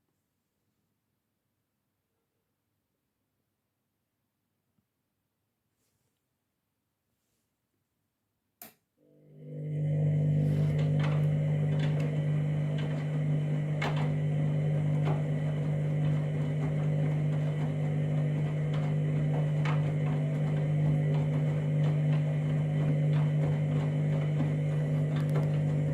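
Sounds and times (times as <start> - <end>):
washing machine motor humming: 9.0 - 25.9.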